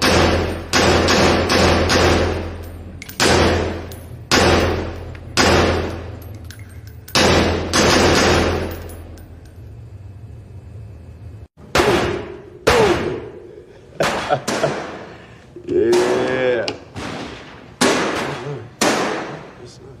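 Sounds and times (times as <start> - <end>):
handgun shots echoing: 0.0 - 9.0, 17.8 - 19.5
steady low hum: 0.0 - 20.0.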